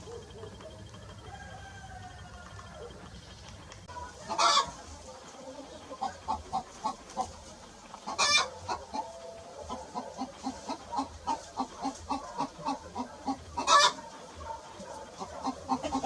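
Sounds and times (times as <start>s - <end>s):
chickens clucking: 0.0s - 16.0s
chicken squawking: 4.0s - 4.8s, 5.6s - 16.0s.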